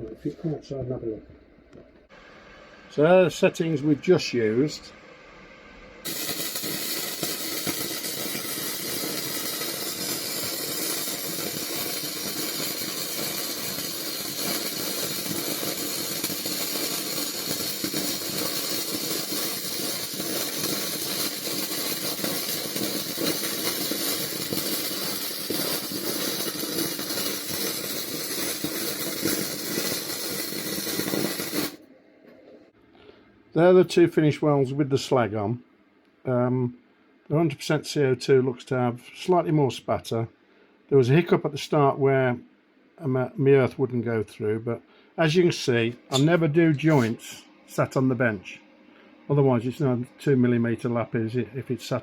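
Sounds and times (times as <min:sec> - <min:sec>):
welding arc crackling: 0:06.0 - 0:31.8, 0:46.1 - 0:47.2.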